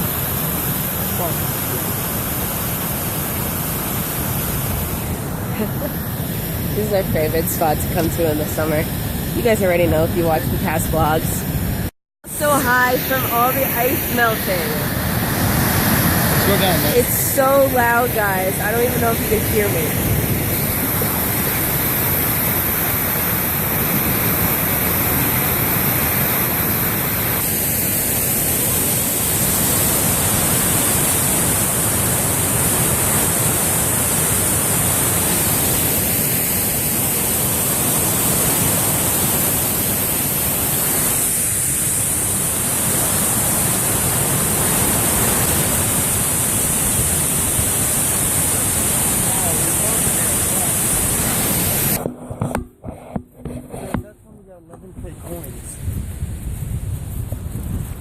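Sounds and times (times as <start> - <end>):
waterfall rushing: 12.3 - 52.2.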